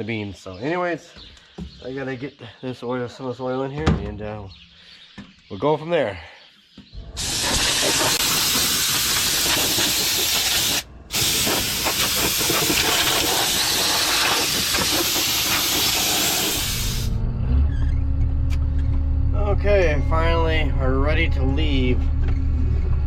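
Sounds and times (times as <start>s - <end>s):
compressed air hissing from nozzle: 7.2s - 17.2s
engine running steadily: 15.3s - 23.0s.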